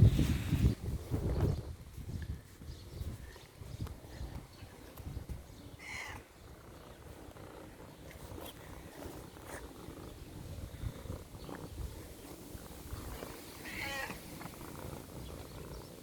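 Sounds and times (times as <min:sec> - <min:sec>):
cat low rumble: 0:04.0 - 0:16.0.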